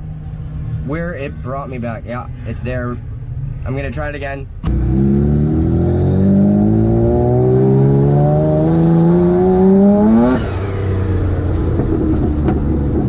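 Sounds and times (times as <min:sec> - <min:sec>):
turbocharged engine accelerating: 0:04.6 - 0:13.0.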